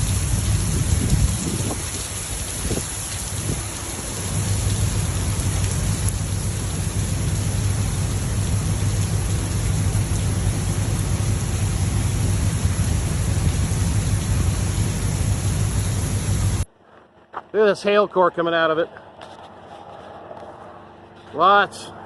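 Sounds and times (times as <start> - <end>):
heavy rain falling: 0.0 - 16.7.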